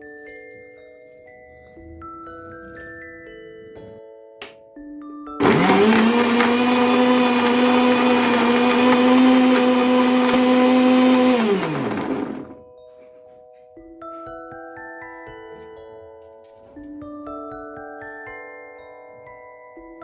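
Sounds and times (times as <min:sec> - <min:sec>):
electric blender motor: 0:05.4 - 0:12.6.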